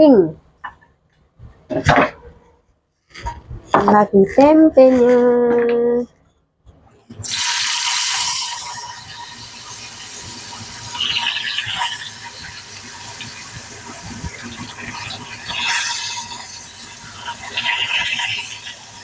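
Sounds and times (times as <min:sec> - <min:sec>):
food frying in hot oil: 0:07.1 - 0:19.0.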